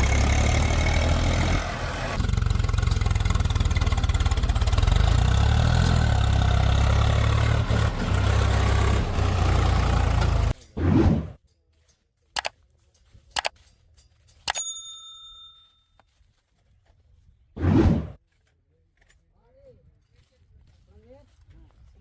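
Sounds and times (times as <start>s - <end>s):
diesel engine running: 0.0s - 10.6s.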